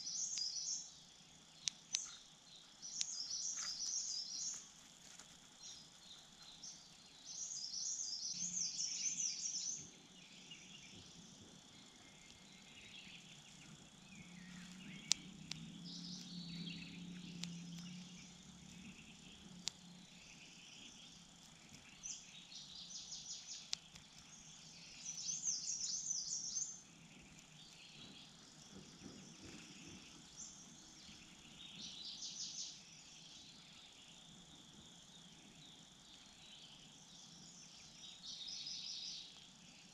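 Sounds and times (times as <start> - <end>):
birds twittering: 0.0 - 39.9
insect chirring: 0.0 - 39.9
sharp clicks: 1.6 - 2.2, 2.8 - 3.9, 14.7 - 19.8, 23.5 - 24.5.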